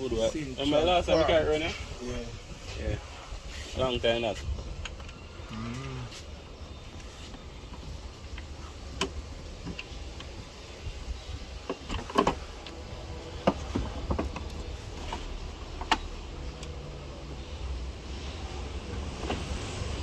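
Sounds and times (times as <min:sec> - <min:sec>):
sharp clicks and knocks: 0:11.6 - 0:12.8.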